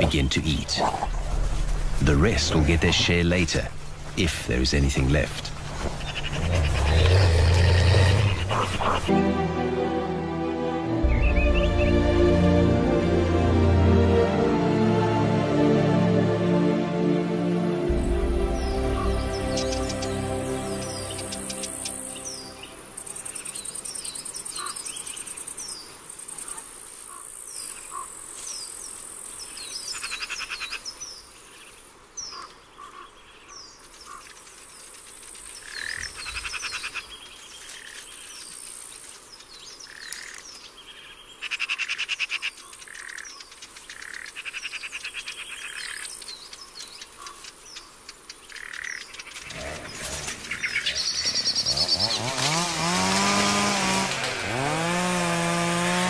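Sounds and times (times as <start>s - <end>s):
insects buzzing and trilling: 5.1s - 9.1s, 17.9s - 55.3s
bird chirps and calls: 18.6s - 28.1s, 39.4s - 52.3s
small engine starting and revving: 49.4s - 56.0s.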